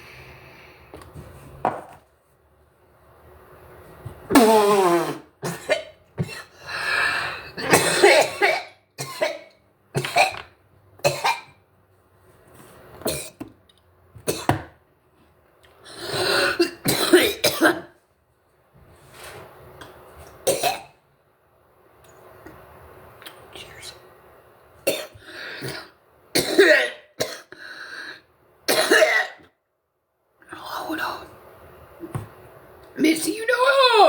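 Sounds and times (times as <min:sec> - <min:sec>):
person coughing harshly: 0:04.3 - 0:06.6, 0:07.6 - 0:11.6, 0:14.3 - 0:14.7, 0:16.4 - 0:18.0, 0:20.5 - 0:21.0, 0:24.9 - 0:27.5, 0:28.7 - 0:29.5.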